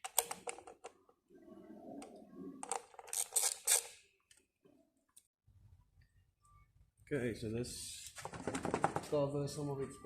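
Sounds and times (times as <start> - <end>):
tools and plastic parts clicking: 0.0 - 1.0, 2.6 - 4.4.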